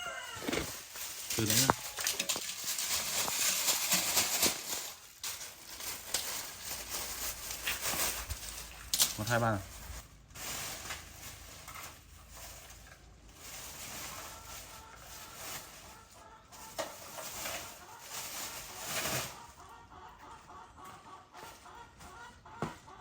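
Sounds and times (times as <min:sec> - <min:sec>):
chickens clucking: 0:00.0 - 0:09.6, 0:11.9 - 0:23.0
rustling noise: 0:00.0 - 0:19.5.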